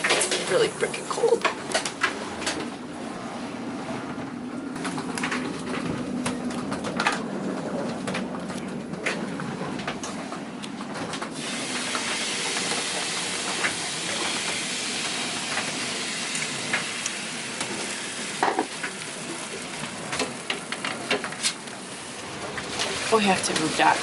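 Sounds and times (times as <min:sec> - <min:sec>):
heavy rain hissing: 0:11.4 - 0:20.3.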